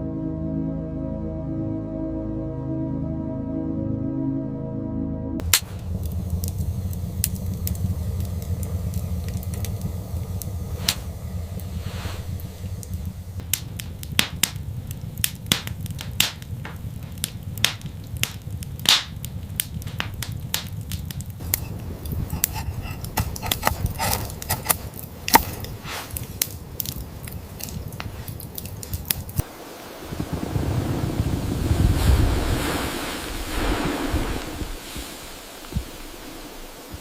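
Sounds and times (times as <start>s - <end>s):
sharp cracks and clicks: 5.4s - 11.7s, 12.4s - 29.4s
low rumble: 5.4s - 37.0s
rushing wind-like noise: 5.4s - 37.0s.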